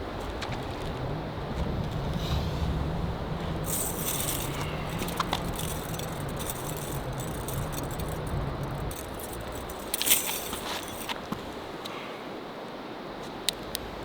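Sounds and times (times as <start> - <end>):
low rumble of wind: 0.0 - 11.9
light rattling and clicking: 3.5 - 11.6.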